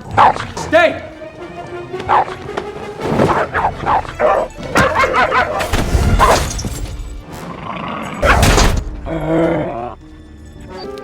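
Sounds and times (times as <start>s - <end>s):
dog barking: 0.0s - 0.6s, 2.0s - 2.5s, 3.3s - 6.4s
film music: 0.0s - 11.0s.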